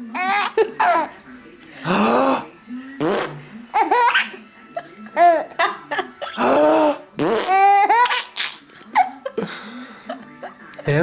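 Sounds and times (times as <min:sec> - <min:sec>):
baby laughing: 0:00.1 - 0:01.2, 0:03.7 - 0:09.5
fart noises: 0:03.0 - 0:03.4, 0:06.4 - 0:08.6.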